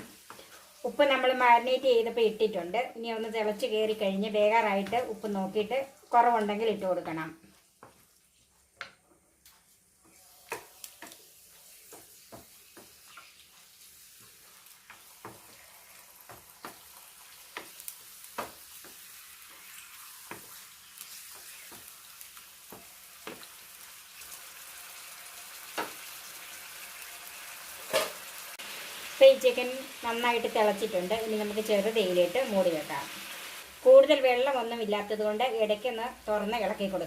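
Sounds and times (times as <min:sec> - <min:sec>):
chicken sizzling in a pan: 0:00.0 - 0:37.0
spoon scraping a pan: 0:10.1 - 0:22.0.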